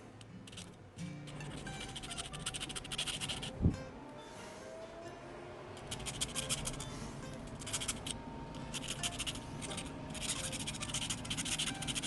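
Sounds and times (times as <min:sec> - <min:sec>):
scratching on metal toy car: 0:00.2 - 0:03.5, 0:05.8 - 0:12.0.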